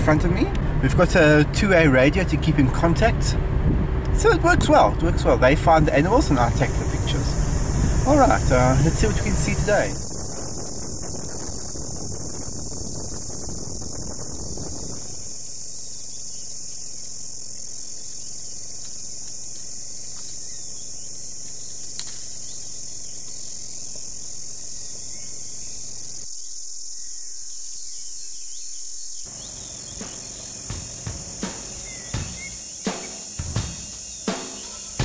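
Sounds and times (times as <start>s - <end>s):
insect chorus trilling: 4.7s - 35.0s
sharp drum hits: 29.9s - 35.0s.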